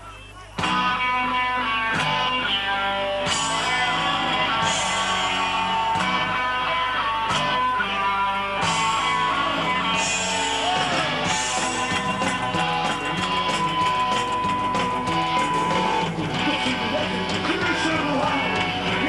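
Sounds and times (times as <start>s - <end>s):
punk rock band playing: 0.5s - 19.0s.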